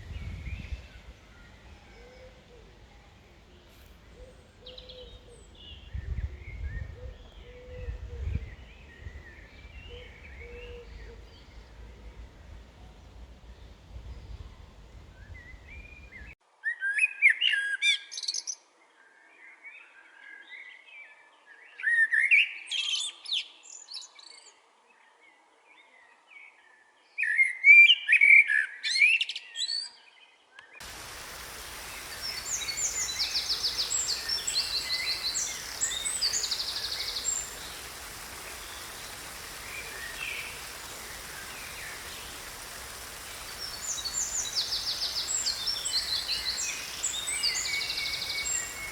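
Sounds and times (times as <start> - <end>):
background hiss: 0.0 - 16.4, 30.8 - 48.9
high fast-trilled bird calls: 0.0 - 16.4, 30.8 - 48.9
songbirds warbling: 0.0 - 16.4, 30.8 - 48.9.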